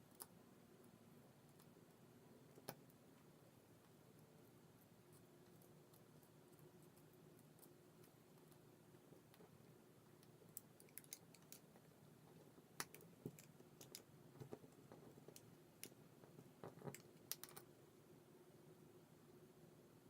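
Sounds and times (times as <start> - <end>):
low steady hum: 0.0 - 20.0
light clicks and taps of small tools: 5.1 - 17.7.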